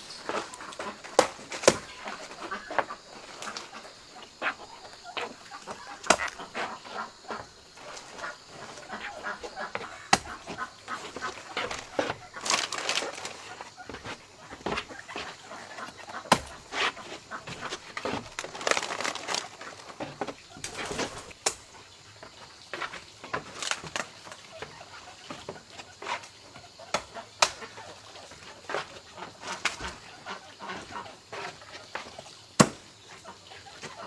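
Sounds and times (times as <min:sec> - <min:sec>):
wings flapping: 0:00.0 - 0:13.8
hens clucking: 0:00.0 - 0:21.4, 0:24.3 - 0:32.3, 0:33.0 - 0:34.0.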